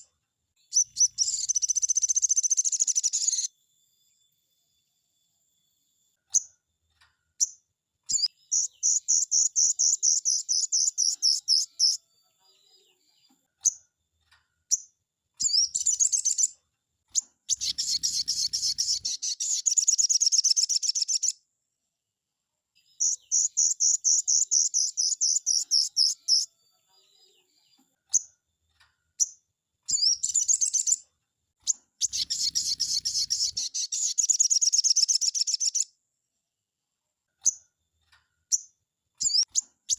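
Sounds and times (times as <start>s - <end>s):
bird singing rapid trills: 0.7s - 3.5s, 7.4s - 12.0s, 14.7s - 16.6s, 17.2s - 21.4s, 23.0s - 26.5s, 29.2s - 31.0s, 31.7s - 35.9s, 38.5s - 39.9s
sharp bird chips: 0.7s - 3.5s, 17.2s - 21.3s, 23.0s - 26.4s, 31.6s - 35.8s, 38.5s - 39.9s.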